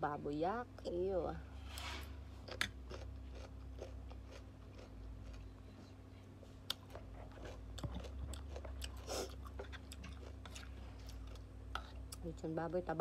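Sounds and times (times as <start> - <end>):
chewing raw cucumber: 2.4 - 5.8, 6.5 - 12.3.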